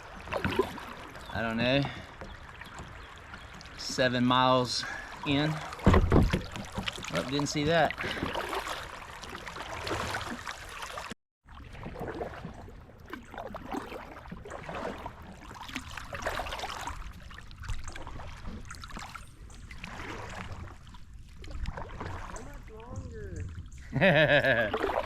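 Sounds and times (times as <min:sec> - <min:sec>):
paddle splashes: 0:00.0 - 0:25.0
water trickling against hull: 0:00.0 - 0:25.0.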